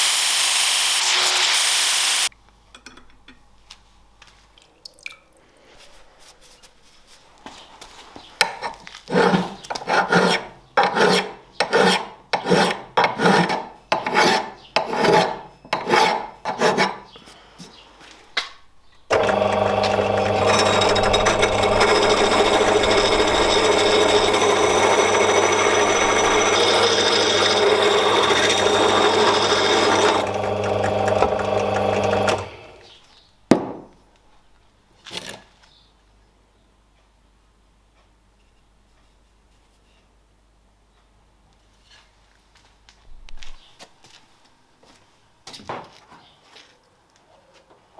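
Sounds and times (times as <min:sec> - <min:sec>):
power tool motor humming: 0:00.0 - 0:02.3, 0:19.1 - 0:32.8
rhythmic hand filing strokes: 0:09.1 - 0:17.0, 0:19.6 - 0:32.4.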